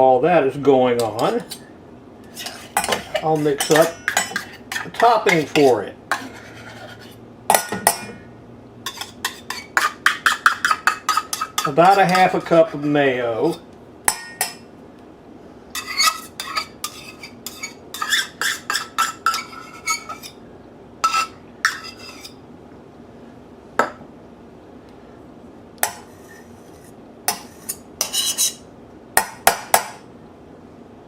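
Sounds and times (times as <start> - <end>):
utensil clinking against a dish: 1.0 - 1.7, 2.3 - 8.2, 8.8 - 14.7, 15.8 - 20.4, 21.0 - 22.4.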